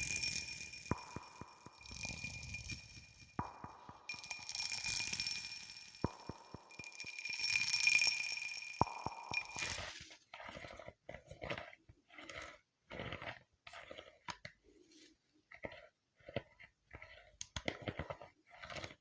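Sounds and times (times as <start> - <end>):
ringing chime-like shimmer: 0.0 - 10.0
crunchy chewing: 10.4 - 14.3.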